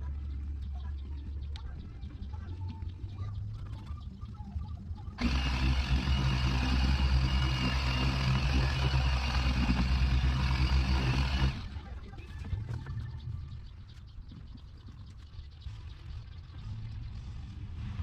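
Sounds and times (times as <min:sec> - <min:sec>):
electric car polisher running: 0:05.2 - 0:11.8.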